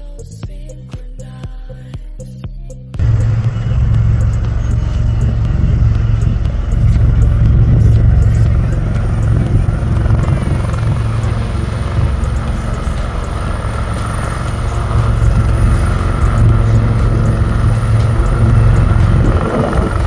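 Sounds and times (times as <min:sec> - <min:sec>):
music: 0:00.0 - 0:20.0
aircraft rumble: 0:03.0 - 0:20.0.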